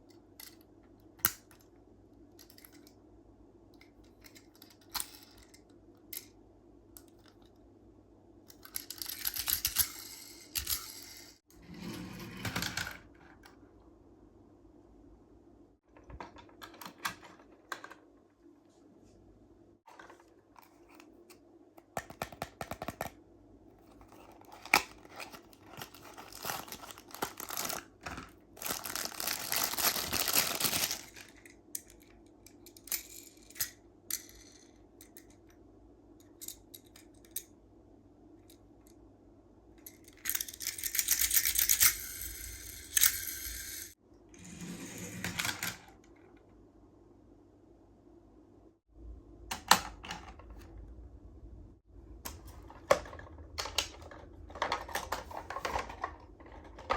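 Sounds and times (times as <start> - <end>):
toy cars clicking and tapping: 8.5 - 11.4, 39.9 - 44.0.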